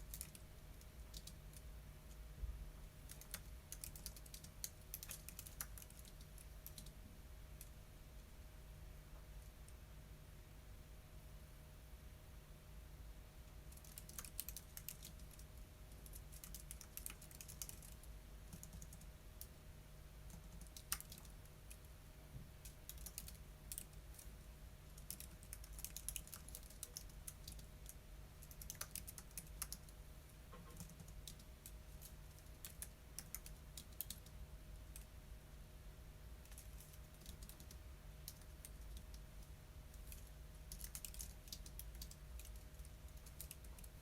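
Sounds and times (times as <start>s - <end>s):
typing on computer keyboard: 0.0s - 1.6s, 3.0s - 7.0s, 13.7s - 19.1s, 20.3s - 21.8s, 22.6s - 24.3s, 24.9s - 34.3s, 36.4s - 39.2s, 39.9s - 44.0s
low steady hum: 0.0s - 44.0s.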